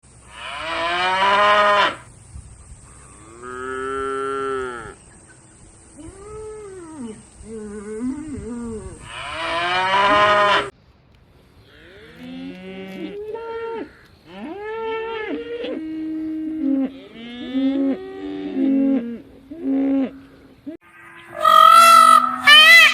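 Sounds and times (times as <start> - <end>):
cows mooing: 7.0 - 10.7.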